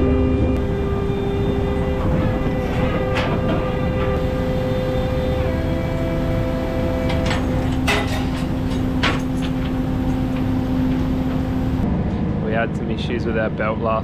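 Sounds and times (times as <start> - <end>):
boat engine rumbling: 0.0 - 11.9
sharp metal knocks: 7.0 - 11.7.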